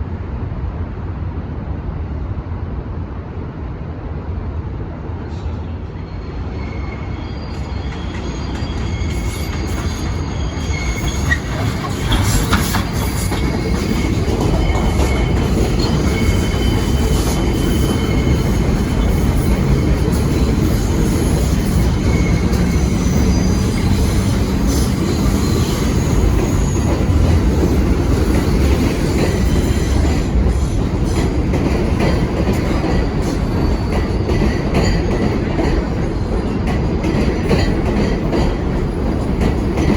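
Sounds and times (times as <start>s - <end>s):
subway train wheels rumbling: 0.0s - 39.9s
high thin wheel squeal: 6.1s - 27.2s.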